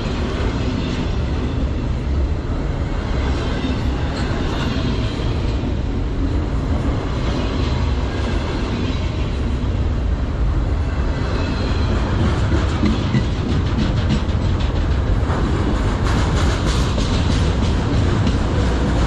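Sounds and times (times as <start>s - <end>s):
wheels clicking over rail joints: 11.9s - 19.0s.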